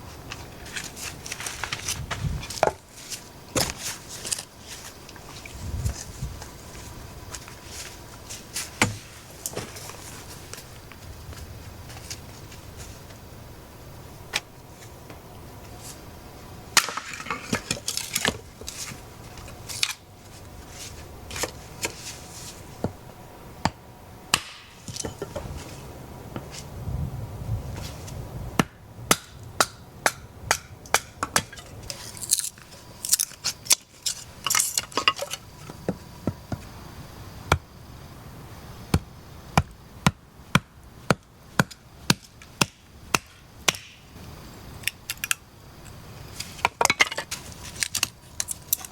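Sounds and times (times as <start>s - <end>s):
sharp chopping knocks: 23.6s - 24.8s.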